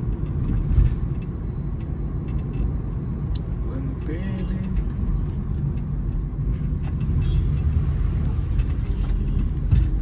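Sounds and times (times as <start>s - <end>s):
car cabin road and engine rumble: 0.0s - 10.0s.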